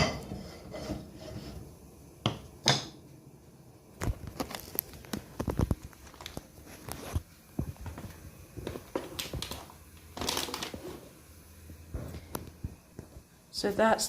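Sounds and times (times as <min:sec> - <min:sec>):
paper towel crinkling: 0:04.1 - 0:11.2.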